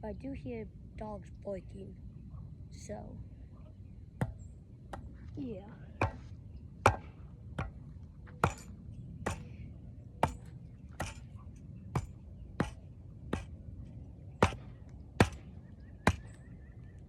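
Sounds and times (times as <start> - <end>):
hand tool chopping blows: 10.2 - 11.3, 14.4 - 15.5.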